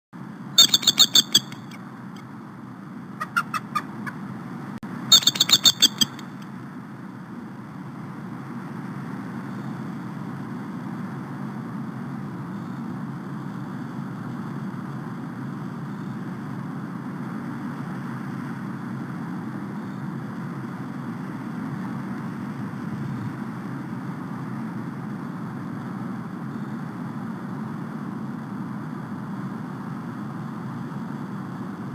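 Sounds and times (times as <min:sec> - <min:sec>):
eagles chittering: 0:00.6 - 0:01.8, 0:03.2 - 0:04.3, 0:05.1 - 0:06.4.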